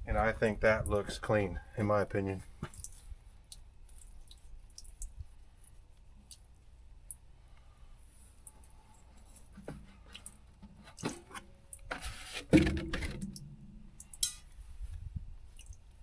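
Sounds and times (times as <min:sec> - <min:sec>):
metal scrape: 0:10.8 - 0:13.3
metal tools clicking and knocking: 0:14.0 - 0:14.5.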